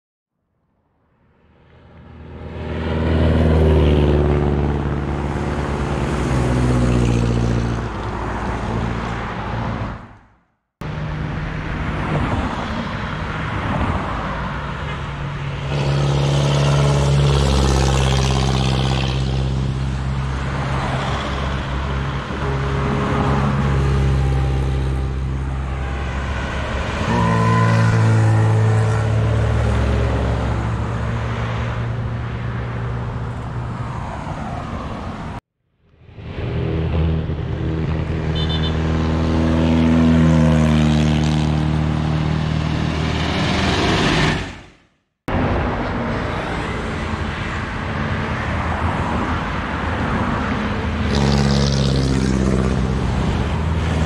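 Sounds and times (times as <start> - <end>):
road traffic: 0.3 - 54.0
racing cars driving past: 1.5 - 10.0, 10.9 - 35.4.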